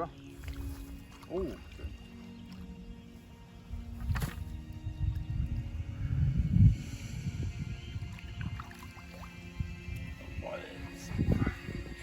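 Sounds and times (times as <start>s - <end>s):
faint background music: 0.0s - 12.0s
low rumbling on microphone: 4.7s - 8.6s, 9.6s - 12.0s.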